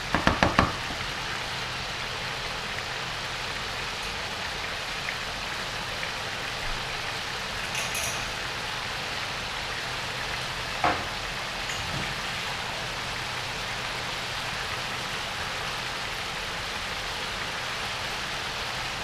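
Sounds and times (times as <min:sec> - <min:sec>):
food sizzling in a wok: 0:00.0 - 0:19.0
wooden spatula knocking pan: 0:00.1 - 0:01.0.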